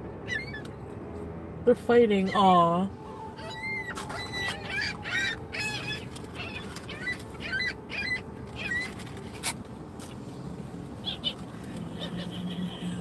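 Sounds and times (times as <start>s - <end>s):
seagulls calling: 3.4s - 9.0s, 11.0s - 13.0s.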